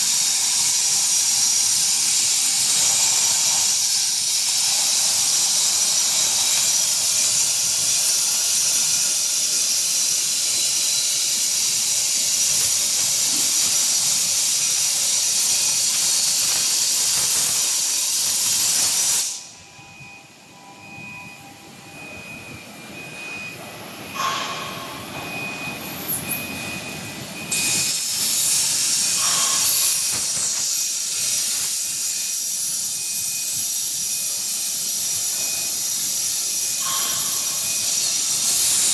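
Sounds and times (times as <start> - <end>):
plasma torch hissing: 0.0 - 19.5, 24.1 - 38.9
machine noise: 0.0 - 38.9
faint on-off high tone: 19.4 - 31.0.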